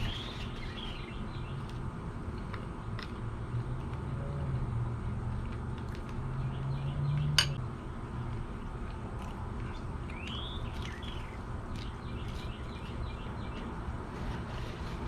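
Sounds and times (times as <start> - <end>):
bird chirping: 0.0 - 1.7, 9.6 - 13.8.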